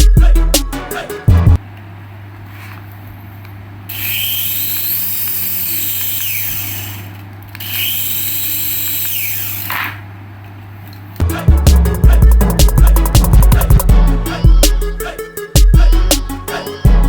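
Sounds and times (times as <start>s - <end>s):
steady low hum: 0.0s - 3.9s, 9.2s - 17.0s
electric toy motor whirring: 3.9s - 10.0s.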